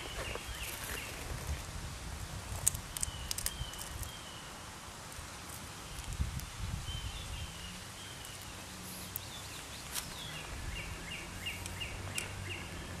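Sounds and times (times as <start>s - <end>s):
small bird chirping: 0.0s - 1.4s, 2.9s - 4.6s, 5.8s - 13.0s.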